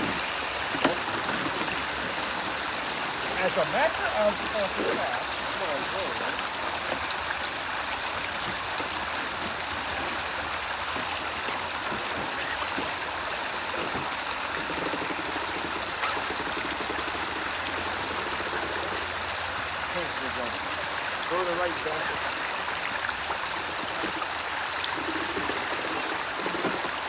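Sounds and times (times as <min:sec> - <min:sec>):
stream of water running: 0:00.0 - 0:27.0.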